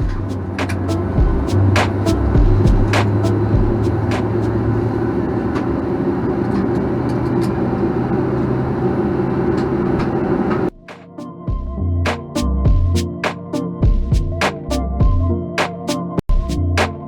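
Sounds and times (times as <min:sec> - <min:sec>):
music with drum hits: 0:00.0 - 0:04.3, 0:10.7 - 0:15.7
low hum: 0:00.0 - 0:05.3.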